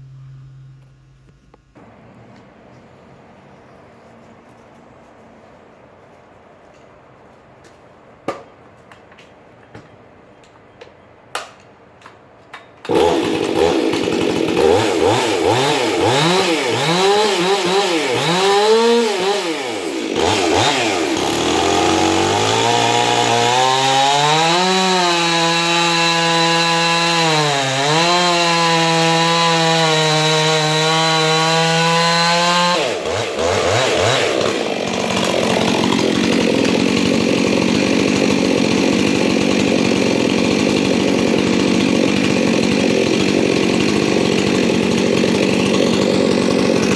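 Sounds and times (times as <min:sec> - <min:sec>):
chainsaw engine revving: 0:12.9 - 0:46.9.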